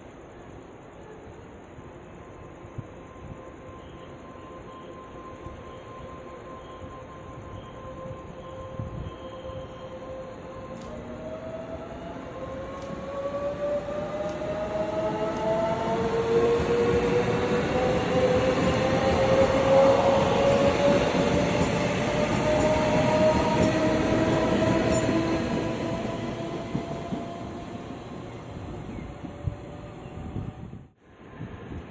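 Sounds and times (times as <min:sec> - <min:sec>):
train rumble: 0:00.0 - 0:31.9.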